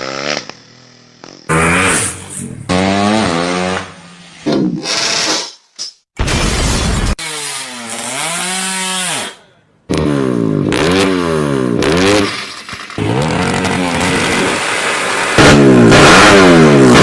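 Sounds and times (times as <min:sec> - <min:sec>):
motorcycle engine revving: 0:00.0 - 0:05.3, 0:09.9 - 0:17.0.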